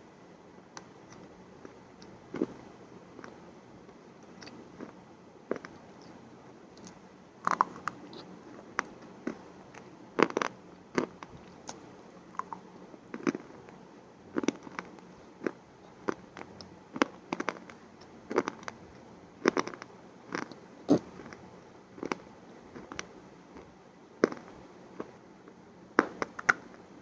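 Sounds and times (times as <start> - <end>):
crunchy biting and chewing: 6.8 - 9.4, 10.2 - 13.7, 19.4 - 21.4.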